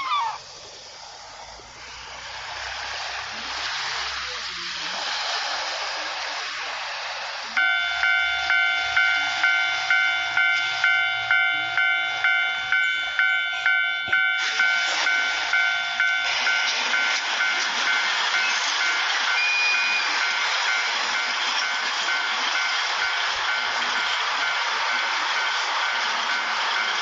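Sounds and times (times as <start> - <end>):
steady hiss: 0.0 - 13.2
railroad crossing bell ringing: 7.6 - 27.0.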